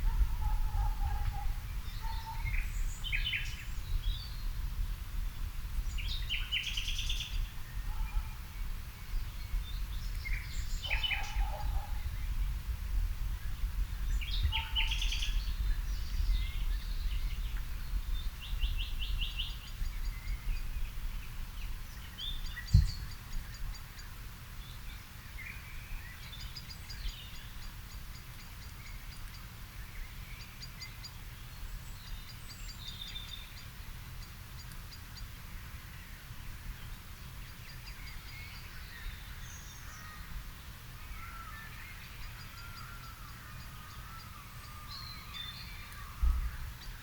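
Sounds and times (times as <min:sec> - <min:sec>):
songbirds singing and calling: 0:00.0 - 0:47.0
single thump: 0:22.7 - 0:23.0.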